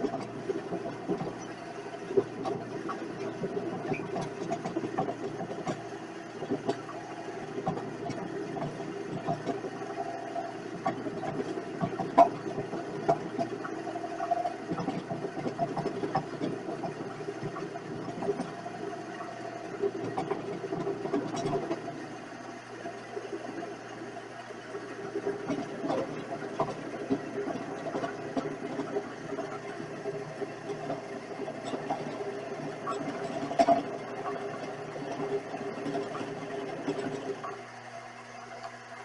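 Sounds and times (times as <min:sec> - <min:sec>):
ticks and knocks: 0:10.8 - 0:21.9.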